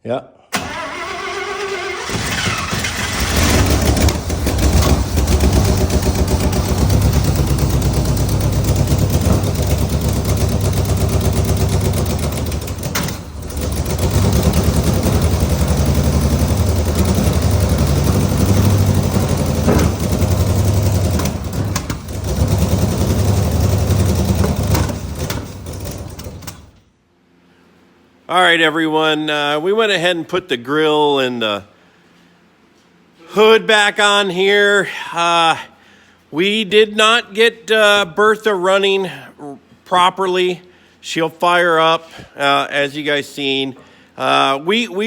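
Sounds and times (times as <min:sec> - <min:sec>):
truck engine running unevenly: 0:02.1 - 0:26.8.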